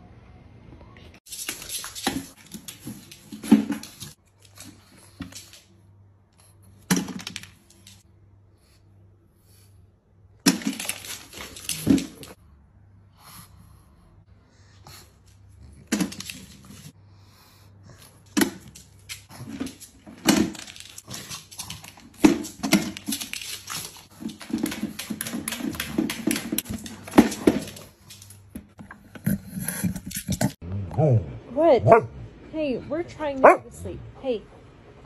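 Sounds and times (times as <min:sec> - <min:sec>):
dog barking: 0:31.8 - 0:32.2, 0:33.4 - 0:33.7.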